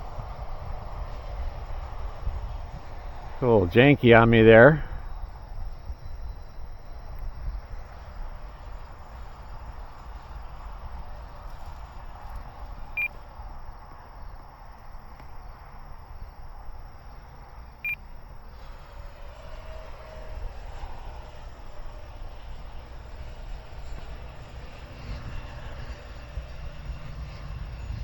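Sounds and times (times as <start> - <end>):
wind rumble on microphone: 0.0 - 3.9, 4.8 - 28.0
electric jet model whine: 0.0 - 28.0.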